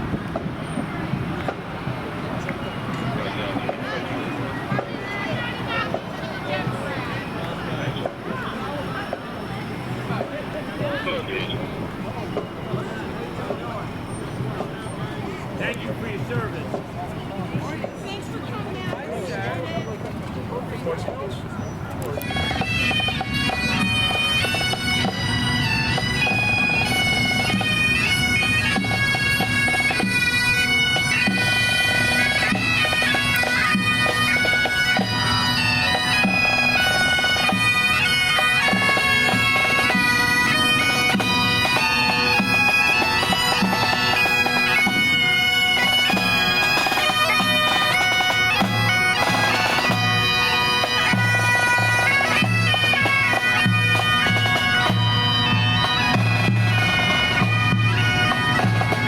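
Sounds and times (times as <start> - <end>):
bagpipes playing marching tune: 0.0 - 20.0, 22.1 - 59.0
drum beat: 22.3 - 59.0.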